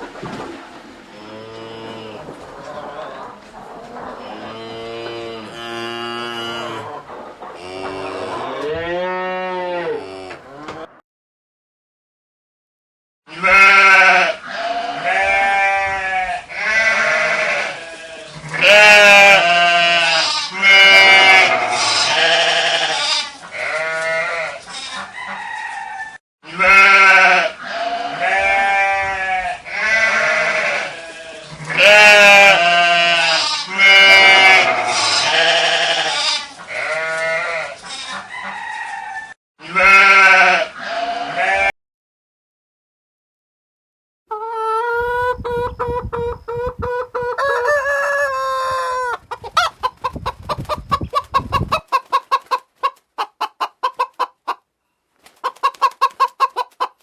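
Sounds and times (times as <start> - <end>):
livestock bleating: 13.3 - 25.0, 26.4 - 38.2, 39.6 - 41.7.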